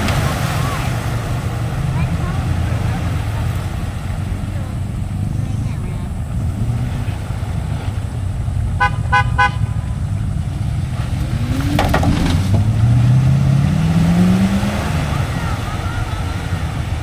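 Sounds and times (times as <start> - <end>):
engine idling and revving: 0.0 - 17.0
vehicle horn honking: 8.7 - 10.4.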